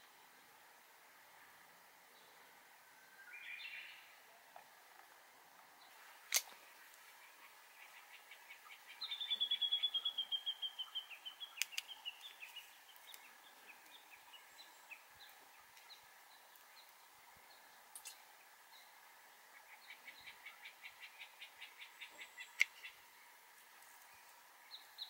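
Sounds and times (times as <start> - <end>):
pruning shears snipping twig: 6.3 - 7.0, 11.6 - 12.4
bird trilling: 7.2 - 12.6.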